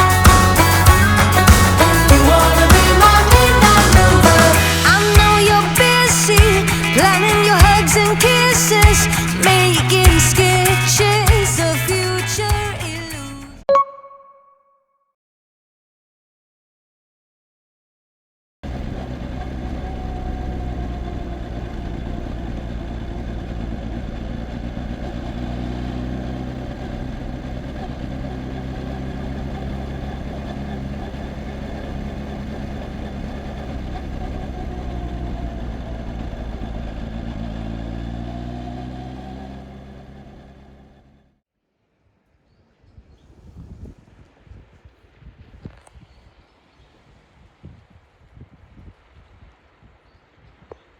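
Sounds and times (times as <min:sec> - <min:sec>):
motorcycle engine running: 0:00.0 - 0:13.6, 0:18.6 - 0:41.4.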